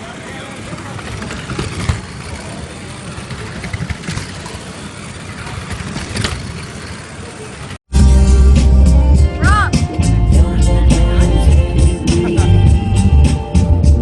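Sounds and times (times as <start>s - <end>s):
faint voices: 0.0s - 5.8s.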